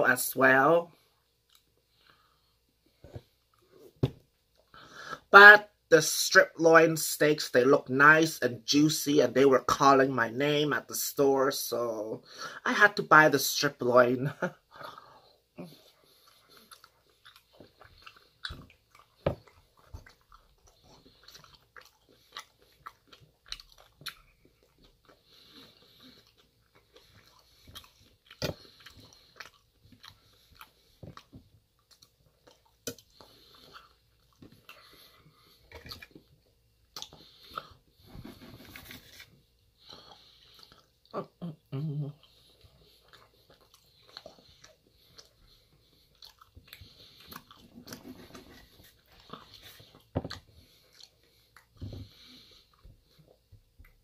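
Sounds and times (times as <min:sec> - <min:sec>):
person chewing food: 0:01.0 - 0:04.8, 0:14.7 - 0:54.0.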